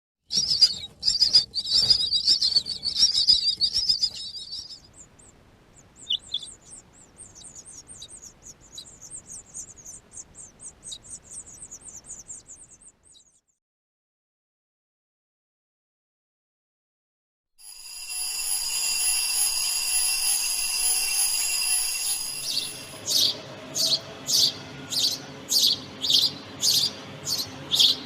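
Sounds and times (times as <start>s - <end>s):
birds chirping at nest: 0.3s - 13.4s, 18.4s - 28.0s.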